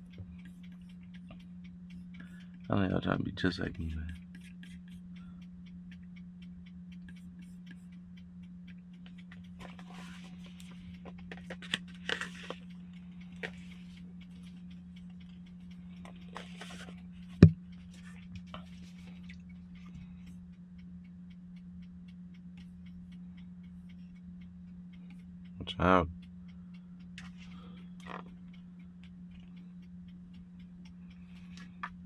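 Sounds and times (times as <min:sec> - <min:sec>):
faint regular ticking: 0:00.0 - 0:32.0
low hum: 0:00.0 - 0:32.0
rustling and scraping handling: 0:09.1 - 0:12.7, 0:16.1 - 0:17.0.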